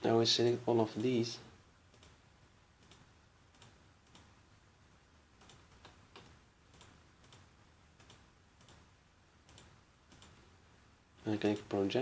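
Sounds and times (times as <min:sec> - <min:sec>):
low steady hiss: 0:00.0 - 0:12.0
computer mouse clicks: 0:01.9 - 0:02.2, 0:02.8 - 0:04.4, 0:05.4 - 0:10.4.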